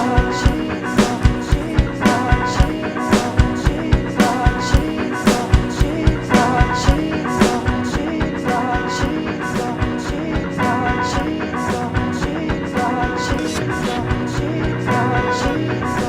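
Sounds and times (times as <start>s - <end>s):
steady drum beat: 0.0s - 8.7s
instrumental rock music: 0.0s - 16.0s.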